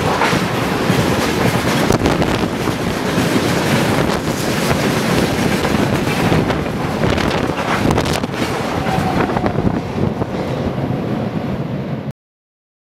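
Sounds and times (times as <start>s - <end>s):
wind noise on microphone: 0.0s - 12.0s
freight train rolling past: 0.0s - 12.1s.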